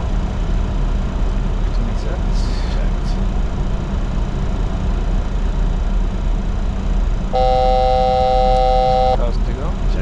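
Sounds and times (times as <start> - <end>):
aircraft cockpit noise: 0.0 - 10.0
multi-pitch alert tone: 7.4 - 9.2.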